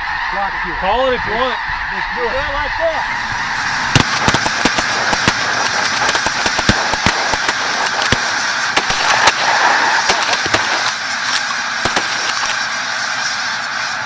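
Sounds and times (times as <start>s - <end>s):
flock of geese honking: 0.0s - 12.6s
shotgun shots: 3.8s - 12.8s.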